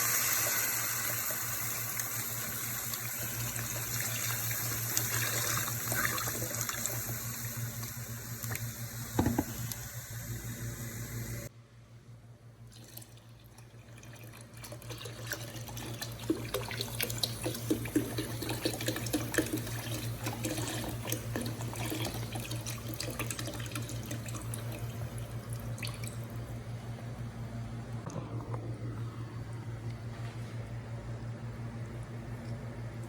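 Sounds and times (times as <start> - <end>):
tap water running into sink: 0.1 - 9.8, 14.7 - 26.2.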